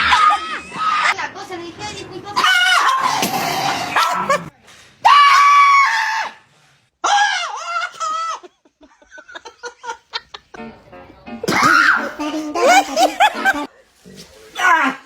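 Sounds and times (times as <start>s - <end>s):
high-pitched screams: 2.4s - 7.7s
snickering laughter: 3.0s - 4.5s, 7.6s - 10.6s, 11.5s - 13.7s.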